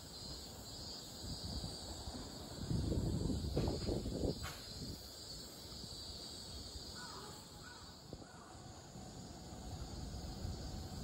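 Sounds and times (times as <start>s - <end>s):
faint outdoor background noise: 0.0s - 11.0s
distant bird calls: 6.8s - 8.7s.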